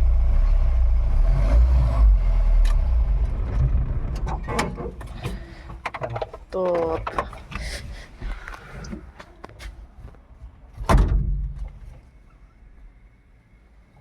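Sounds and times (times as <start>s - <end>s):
vehicle door slamming: 10.8s - 11.7s.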